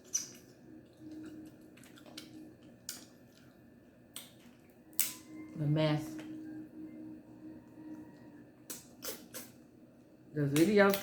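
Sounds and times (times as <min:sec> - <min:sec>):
soft eating clicks and smacks: 0:00.0 - 0:05.3, 0:07.9 - 0:11.0
faint low hum: 0:00.0 - 0:11.0.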